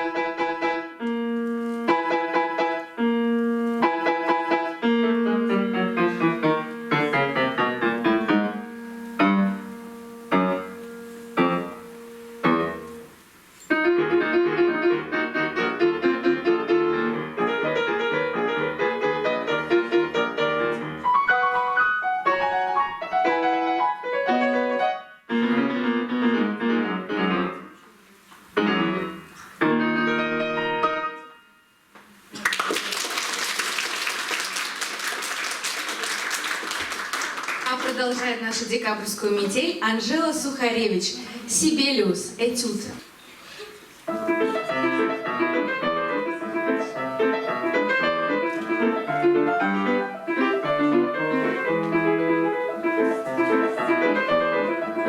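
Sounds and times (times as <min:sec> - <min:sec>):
solo piano playing: 0:00.0 - 0:27.8, 0:28.6 - 0:31.9, 0:44.1 - 0:55.0.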